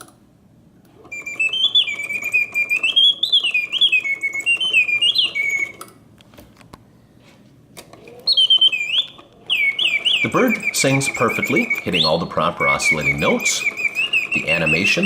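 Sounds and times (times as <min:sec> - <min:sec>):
mechanical bird whistling: 0:01.0 - 0:05.9, 0:08.0 - 0:15.0
clockwork ticking: 0:08.4 - 0:15.0.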